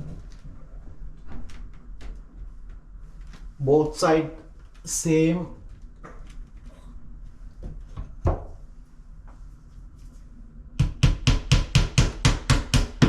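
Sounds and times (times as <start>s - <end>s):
hammer tapping a nail: 10.8s - 13.0s.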